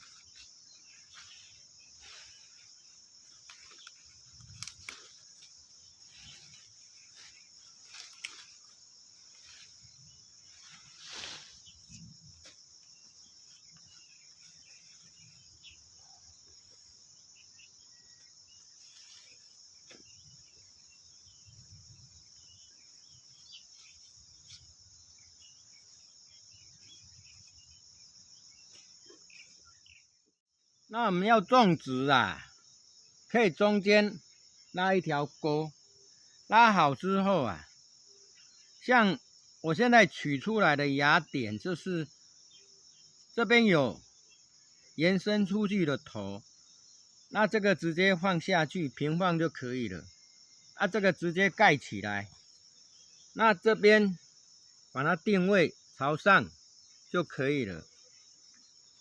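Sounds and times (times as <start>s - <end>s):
insects chirring: 0.0s - 59.0s
plants rustling and knocking: 2.3s - 15.1s.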